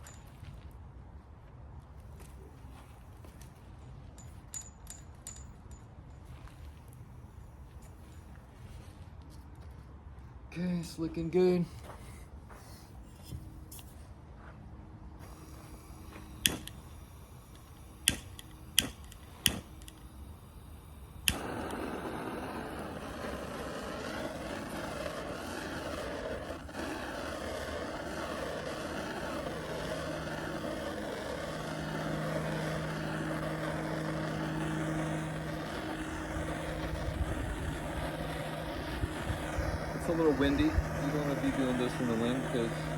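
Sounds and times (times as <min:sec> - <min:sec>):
gas torch igniter clicks: 0:15.2 - 0:16.9, 0:17.5 - 0:20.1, 0:21.2 - 0:21.9
gas torch rushing flame: 0:15.2 - 0:42.9.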